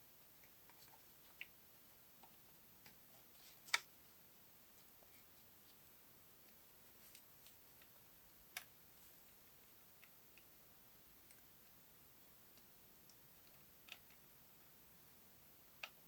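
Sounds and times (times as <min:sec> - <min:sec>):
small parts clicking and tapping: 0:12.5 - 0:14.3.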